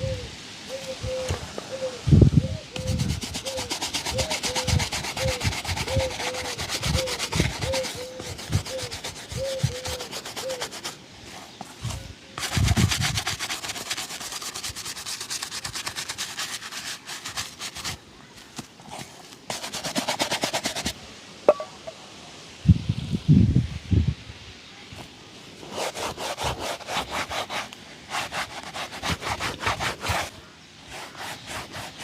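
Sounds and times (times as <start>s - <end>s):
brush rubbing leather shoe: 2.8s - 21.0s, 25.6s - 32.0s.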